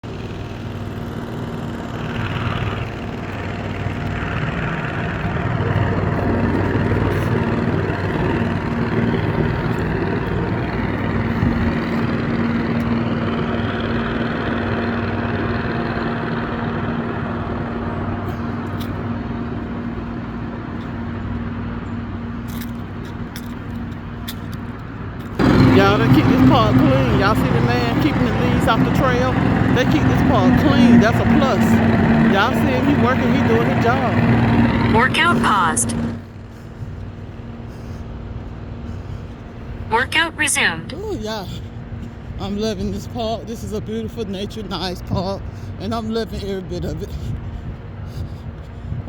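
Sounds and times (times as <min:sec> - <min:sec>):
leaf blower running: 0:00.0 - 0:22.2, 0:25.3 - 0:39.3.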